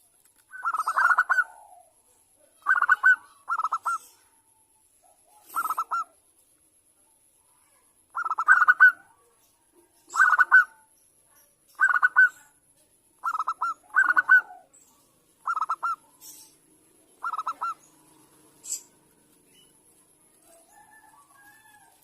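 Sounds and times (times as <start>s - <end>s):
dove cooing: 0.5s - 4.4s, 5.2s - 6.2s, 8.1s - 9.2s, 10.1s - 10.8s, 11.8s - 12.4s, 13.2s - 19.1s.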